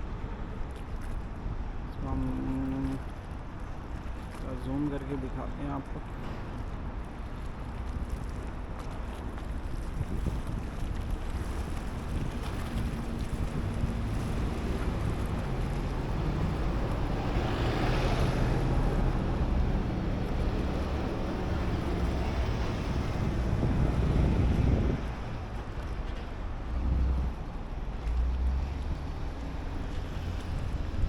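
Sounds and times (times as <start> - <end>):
wind buffeting the microphone: 0.0 - 31.0.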